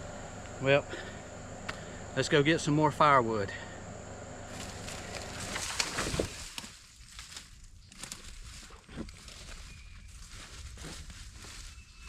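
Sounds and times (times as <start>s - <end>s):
crunching and rustling: 4.5s - 12.0s.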